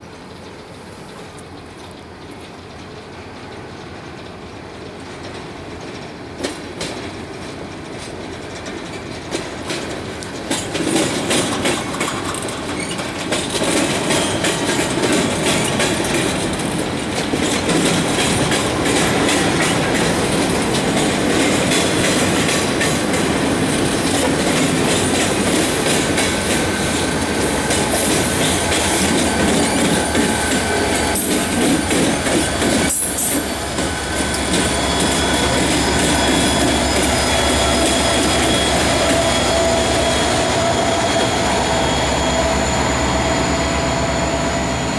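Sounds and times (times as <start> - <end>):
train rolling noise: 0.0 - 44.9
train wheels clicking over rail joints: 0.1 - 42.4
thin wheel squeal: 26.7 - 44.9.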